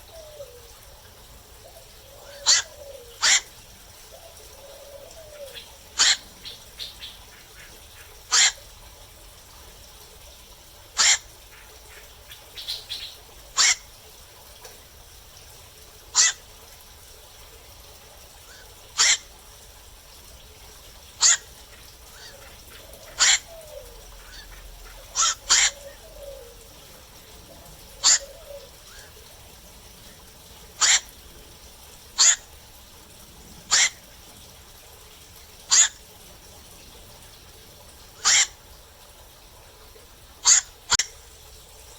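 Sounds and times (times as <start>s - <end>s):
heron harsh calls: 2.2s - 3.6s, 6.0s - 6.2s, 8.3s - 8.6s, 11.0s - 11.3s, 13.6s - 13.8s, 16.1s - 16.4s, 19.0s - 19.3s, 21.2s - 21.5s, 22.2s - 26.6s, 27.9s - 29.2s, 30.8s - 31.2s, 32.2s - 32.5s, 33.7s - 34.1s, 35.7s - 36.0s, 38.2s - 38.6s, 40.4s - 41.2s.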